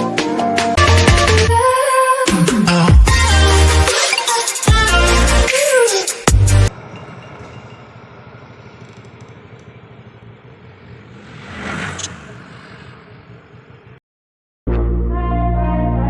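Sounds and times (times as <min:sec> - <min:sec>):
outdoor background noise: 0:06.7 - 0:14.0
passing vehicle: 0:06.7 - 0:14.0.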